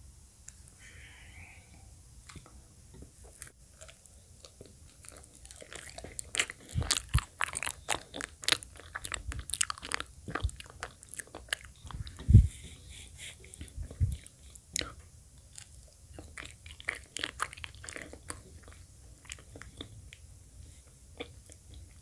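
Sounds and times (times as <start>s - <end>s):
wet chewing smacks and clicks: 3.3s - 12.3s, 13.4s - 22.0s.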